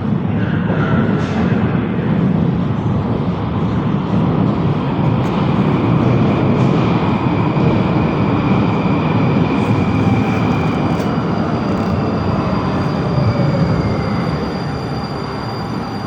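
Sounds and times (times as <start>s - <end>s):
metro train wheels rumbling: 0.0s - 16.0s
high whine of traction drive: 4.0s - 16.0s.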